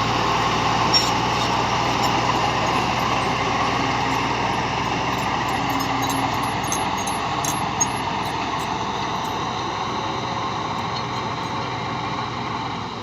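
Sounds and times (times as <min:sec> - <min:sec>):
bulldozer engine running: 0:00.0 - 0:13.0.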